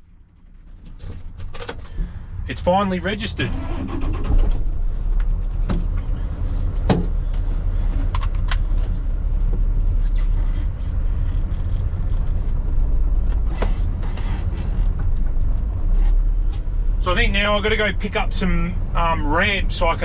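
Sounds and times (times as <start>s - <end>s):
diesel truck engine drone: 0.0s - 20.0s
sharp clicks and knocks: 0.7s - 2.1s.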